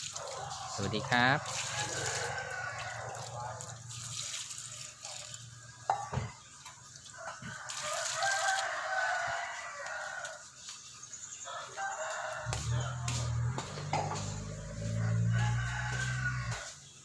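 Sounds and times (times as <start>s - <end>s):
rooster crowing: 0.2s - 3.6s, 7.2s - 10.5s, 11.4s - 16.8s.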